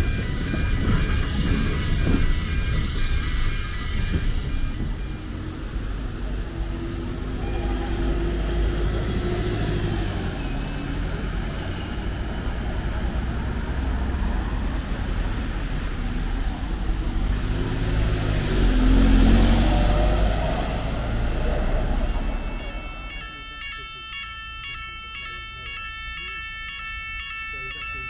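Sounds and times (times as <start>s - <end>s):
train rumbling: 0.0s - 24.2s.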